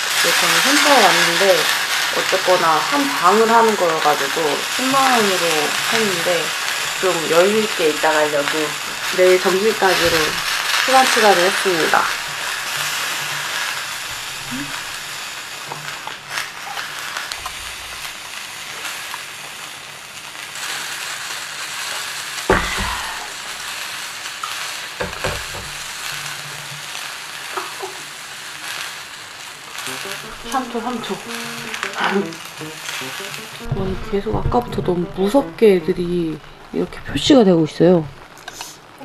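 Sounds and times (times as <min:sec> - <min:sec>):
rain pattering on a roof: 0:00.0 - 0:39.0
dull thump: 0:22.5 - 0:23.0.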